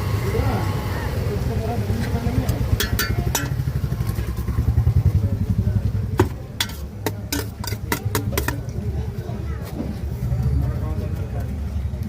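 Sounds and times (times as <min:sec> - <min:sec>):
low fast-pulsing engine running: 0:00.0 - 0:09.2.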